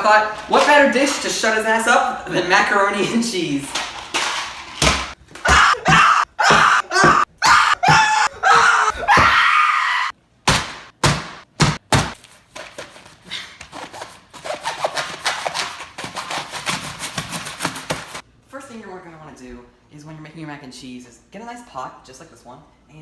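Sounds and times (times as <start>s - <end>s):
sharp knocks: 10.5s - 12.2s.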